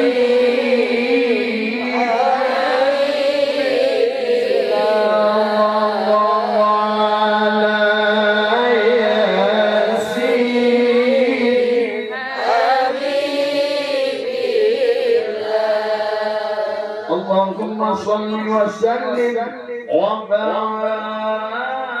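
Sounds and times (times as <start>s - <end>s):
man chanting melodically: 0.0s - 3.4s, 4.5s - 12.6s, 17.0s - 22.0s.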